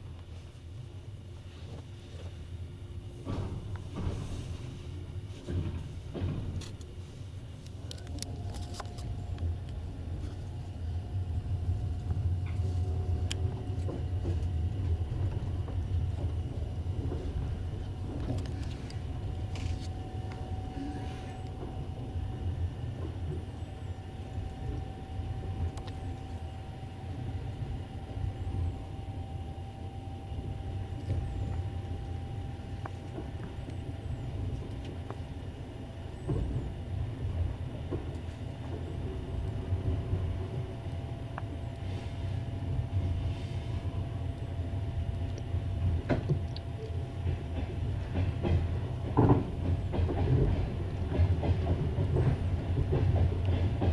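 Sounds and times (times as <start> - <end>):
faint steady whine: 0.0 - 49.4
train rumble inside carriage: 0.0 - 53.9.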